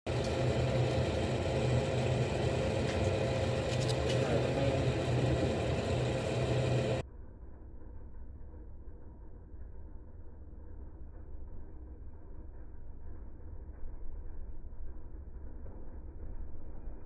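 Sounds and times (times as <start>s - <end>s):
boat engine droning: 0.0s - 7.0s.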